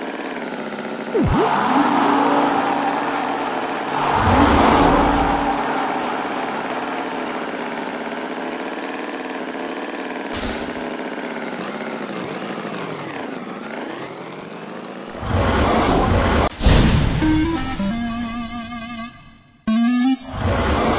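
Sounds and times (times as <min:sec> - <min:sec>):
engine running: 0:00.0 - 0:16.5
louder fuller sound: 0:01.2 - 0:08.8.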